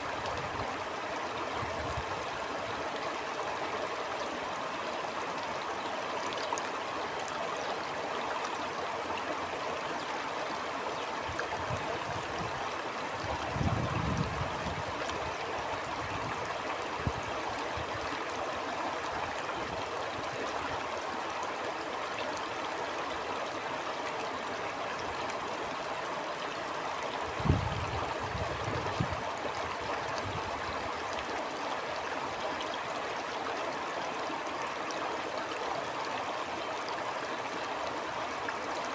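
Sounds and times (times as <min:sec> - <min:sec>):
stream flowing: 0:00.0 - 0:38.9
wind gusts buffeting microphone: 0:13.2 - 0:15.0, 0:27.4 - 0:29.3.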